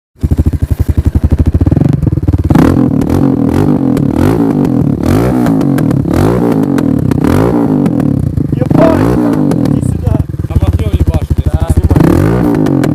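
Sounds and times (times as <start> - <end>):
motorcycle engine revving: 0.2 - 12.9.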